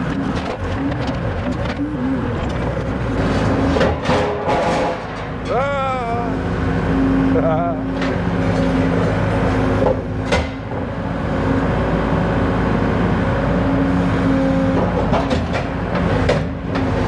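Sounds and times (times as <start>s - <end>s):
skid steer engine running: 0.0s - 17.0s
metal clanks and knocks: 2.5s - 5.8s, 8.0s - 10.9s.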